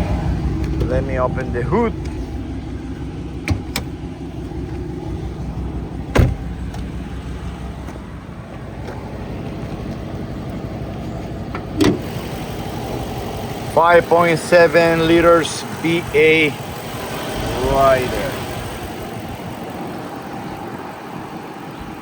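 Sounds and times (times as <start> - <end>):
car engine idling: 0.0 - 22.0
car hood opening thump: 3.4 - 4.0, 6.1 - 7.0, 11.5 - 12.0
hood latch clicks: 3.4 - 4.8, 11.5 - 12.1.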